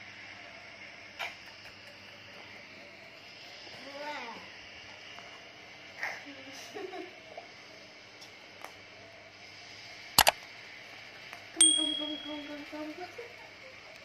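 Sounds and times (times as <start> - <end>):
bright bell ding: 11.6 - 12.6.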